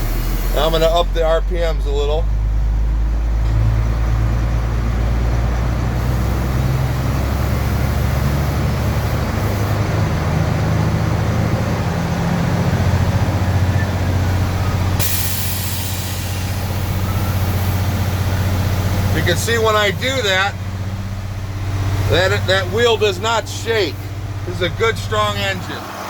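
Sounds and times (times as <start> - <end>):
air brake hiss: 0.0 - 0.9, 14.6 - 19.1
diesel engine running: 0.0 - 26.0.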